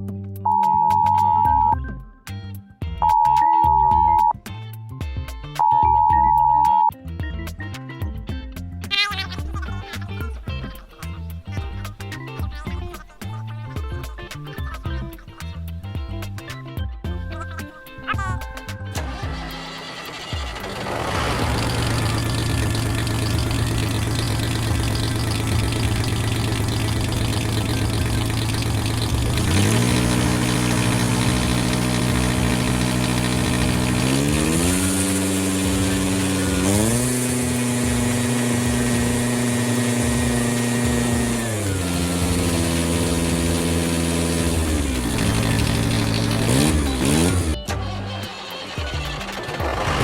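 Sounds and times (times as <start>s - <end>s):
vehicle engine idling and revving: 19.0s - 48.2s, 48.8s - 50.0s.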